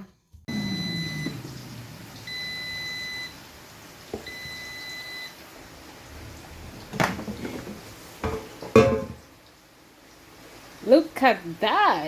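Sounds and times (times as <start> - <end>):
appliance beeps: 0.5 - 1.5, 2.2 - 3.4, 4.2 - 5.4.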